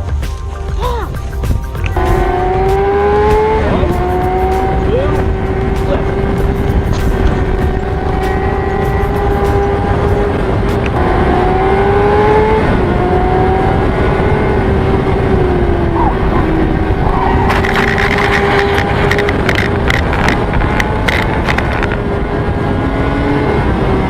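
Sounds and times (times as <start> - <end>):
sharp clicks and rattles: 0.0 - 11.4, 17.2 - 22.1
motorcycle engine at high revs: 1.8 - 24.0.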